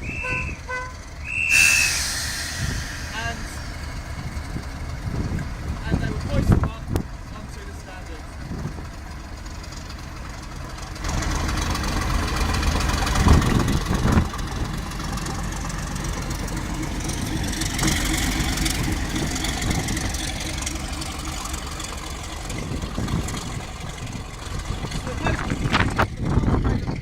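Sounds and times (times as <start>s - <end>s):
diesel locomotive engine running: 0.0s - 27.0s
high hiss: 1.4s - 5.0s
heavy low thumps: 1.5s - 6.7s.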